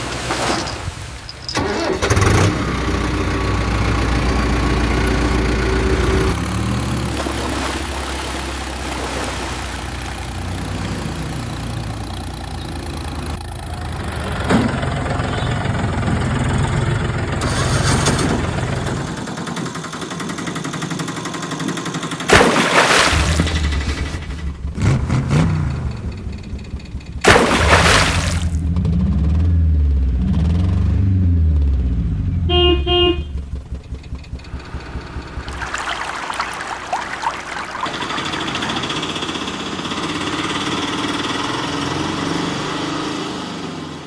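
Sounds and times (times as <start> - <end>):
vehicle engine running: 23.6 - 27.3, 28.6 - 35.5.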